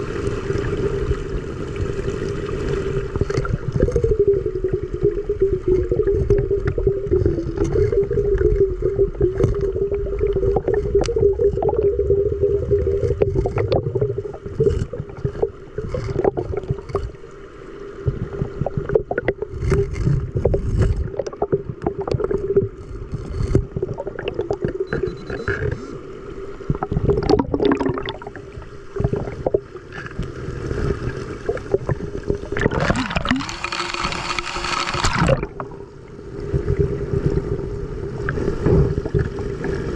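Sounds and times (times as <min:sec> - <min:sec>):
rush of water: 0:00.0 - 0:39.9
water gurgling: 0:00.0 - 0:39.9
small knocks and scrapes: 0:13.0 - 0:17.2, 0:18.0 - 0:23.9.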